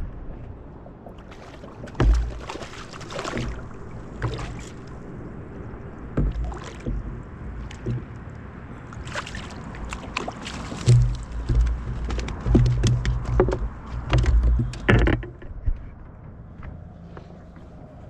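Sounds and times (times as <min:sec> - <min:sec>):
water noise: 0:00.0 - 0:16.5
wind: 0:00.0 - 0:18.0
knocks on a kayak hull: 0:02.0 - 0:02.5, 0:06.1 - 0:08.2, 0:10.7 - 0:15.6.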